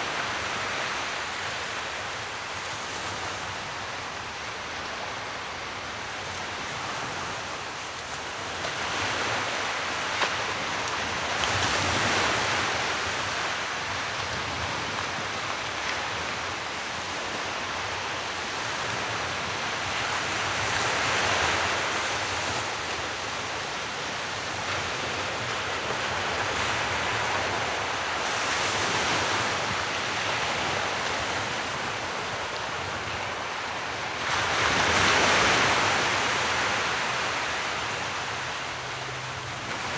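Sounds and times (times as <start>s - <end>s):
sea waves washing onto shore: 0.0s - 39.9s.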